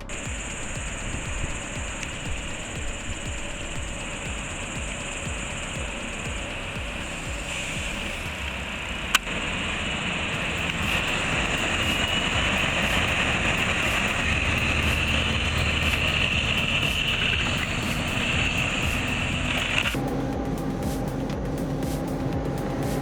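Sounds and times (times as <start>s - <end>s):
engine running at high revs: 0.0s - 23.0s.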